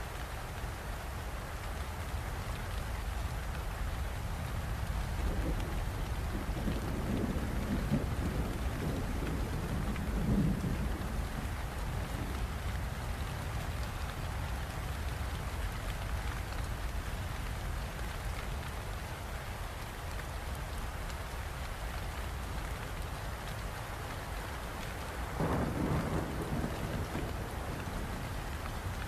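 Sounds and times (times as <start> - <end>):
heavy rain: 0.0 - 29.0
thunder rumbling: 5.1 - 12.5, 25.3 - 29.0.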